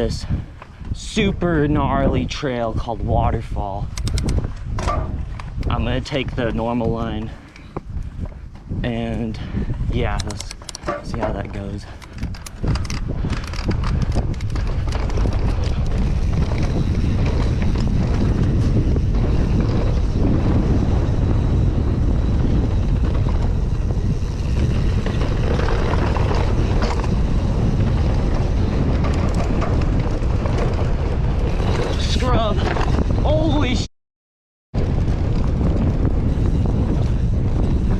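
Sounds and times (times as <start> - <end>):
bike tyre and frame noise: 0.0 - 2.9, 3.6 - 33.8, 34.8 - 37.9
wind rushing over microphone: 0.0 - 33.9, 34.8 - 37.9
sharp clicks: 3.9 - 4.4, 10.1 - 11.1.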